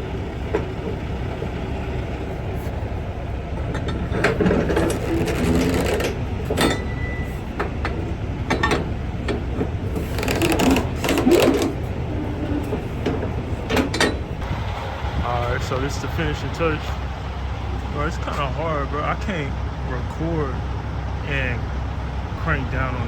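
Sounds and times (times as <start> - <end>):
rapid mechanical clattering: 0.0 - 14.4
diesel engine idling: 0.0 - 23.0.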